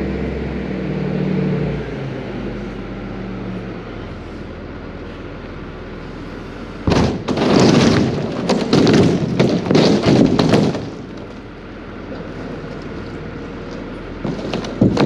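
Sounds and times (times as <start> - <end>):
loader engine running: 0.0 - 15.0
loud crashes and bangs: 6.9 - 11.4, 14.2 - 15.0.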